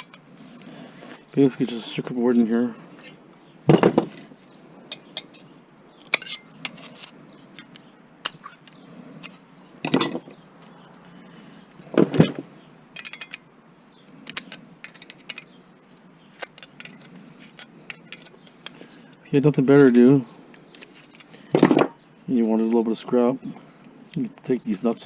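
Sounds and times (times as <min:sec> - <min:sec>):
metal clinks and taps: 0:13.0 - 0:13.4.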